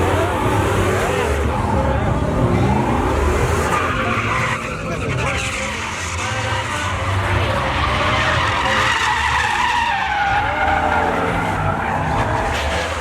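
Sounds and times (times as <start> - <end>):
engine at high revs: 0.0 - 9.6
tires squealing on pavement: 0.0 - 13.0.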